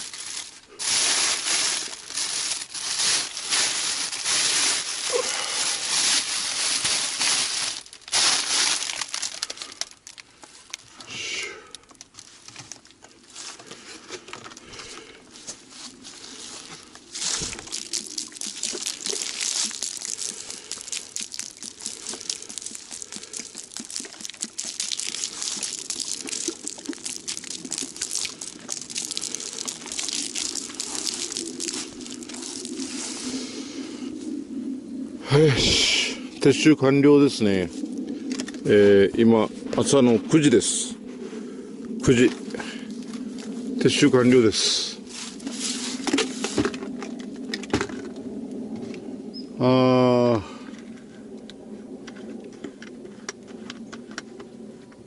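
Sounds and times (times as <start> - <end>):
camping gear rustling: 0.0 - 11.1, 11.8 - 33.4, 45.0 - 48.2.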